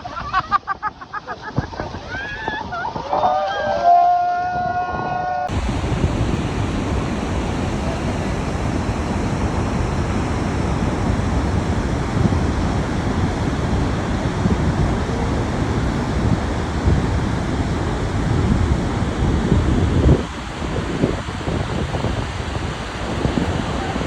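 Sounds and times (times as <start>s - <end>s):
wind rumbling on microphone: 1.4s - 24.0s
waterfall roaring: 5.5s - 24.0s.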